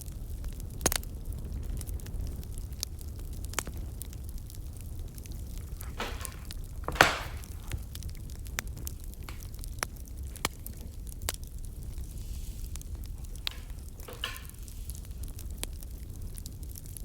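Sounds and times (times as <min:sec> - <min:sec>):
firewood crackling and popping: 0:00.0 - 0:17.0
low fire rumble: 0:00.0 - 0:17.0
short hiss from fire: 0:11.7 - 0:15.9.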